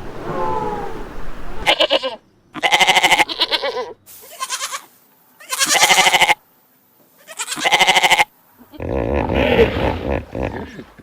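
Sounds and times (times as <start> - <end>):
livestock bleating: 1.6 - 6.4, 7.2 - 9.0.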